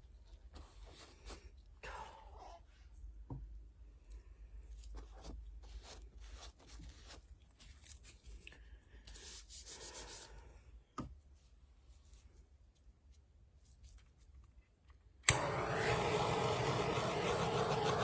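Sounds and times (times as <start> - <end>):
rustling tearing sound: 6.3 - 8.6.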